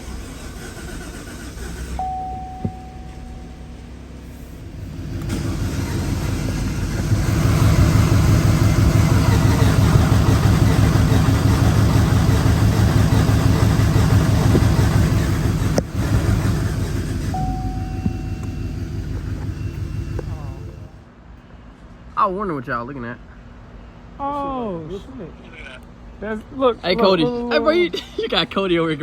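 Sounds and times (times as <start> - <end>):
loud car engine under heavy throttle: 0.0 - 21.0.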